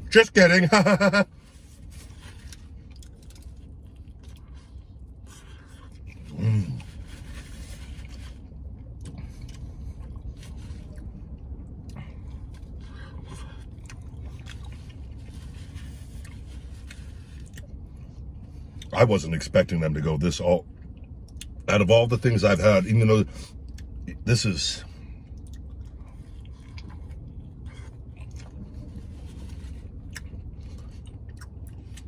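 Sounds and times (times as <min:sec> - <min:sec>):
man chewing food: 0:01.3 - 0:18.9, 0:25.1 - 0:32.0.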